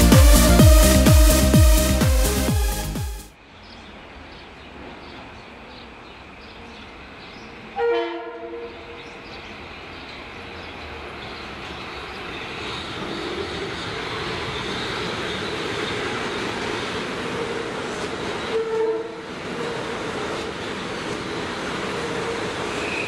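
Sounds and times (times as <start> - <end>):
train rumble and wheel noise: 3.4 - 23.0
train horn blast: 7.8 - 9.0, 18.5 - 19.3.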